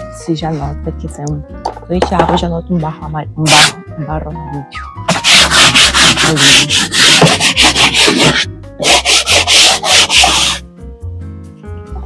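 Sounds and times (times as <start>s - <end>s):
stiff brush scrubbing wet surface: 3.5s - 3.8s, 5.1s - 10.6s.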